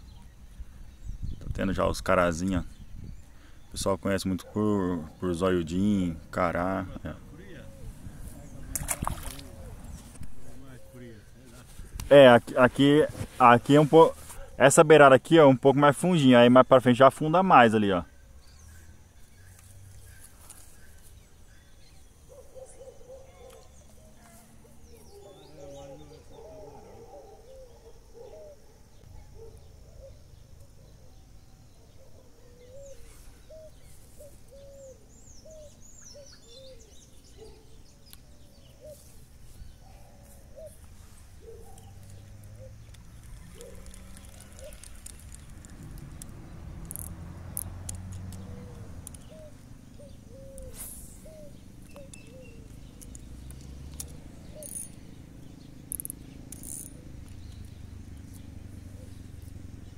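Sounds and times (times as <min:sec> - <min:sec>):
high falling bird chirps: 0:15.3 - 0:59.9
sharp clicks: 0:41.7 - 0:49.4, 0:51.8 - 0:55.0, 0:55.8 - 0:58.5.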